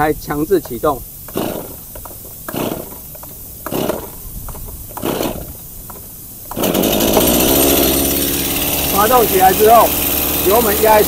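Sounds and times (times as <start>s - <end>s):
chainsaw recoil starter pulled: 0.6s - 11.0s
two-stroke engine running fast: 1.3s - 1.8s, 2.5s - 3.0s, 3.6s - 4.2s, 5.0s - 5.5s, 6.5s - 11.0s.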